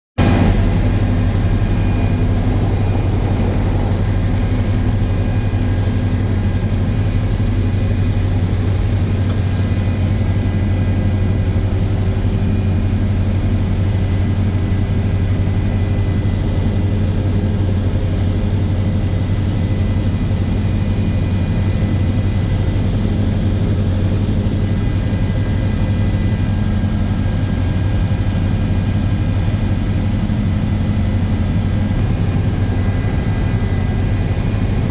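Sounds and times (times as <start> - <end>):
faint steady tones: 0.2 - 9.4
aircraft engine drone: 0.2 - 34.9.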